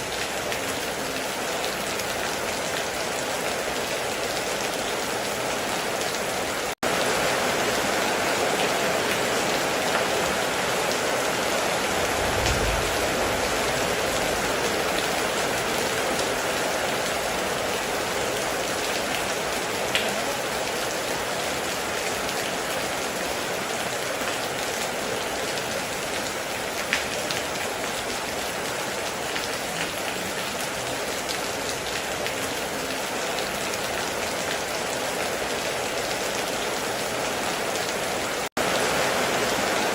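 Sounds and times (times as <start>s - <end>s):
heavy rain on a metal roof: 0.0s - 39.9s
low rumble: 11.9s - 14.4s.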